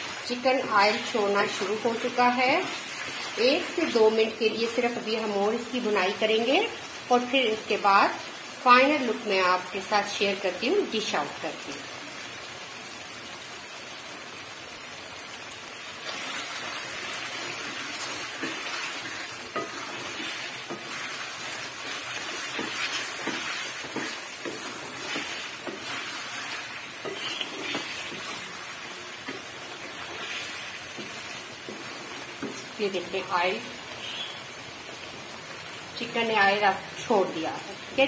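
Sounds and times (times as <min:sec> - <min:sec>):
food sizzling in oil: 0:00.0 - 0:38.0
spatula scraping and knocking pan: 0:16.0 - 0:32.8.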